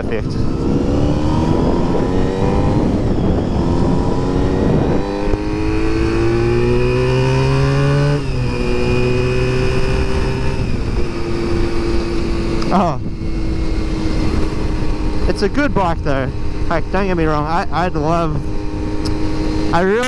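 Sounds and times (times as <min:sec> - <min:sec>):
wind rushing: 0:00.0 - 0:07.6
motorcycle engine accelerating: 0:00.0 - 0:20.0.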